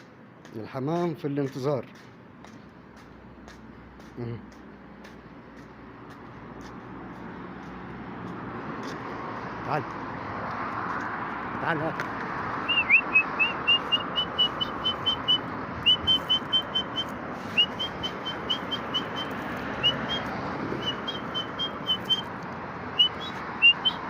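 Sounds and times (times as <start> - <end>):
person whistling short notes: 12.6 - 22.3, 23.0 - 24.0.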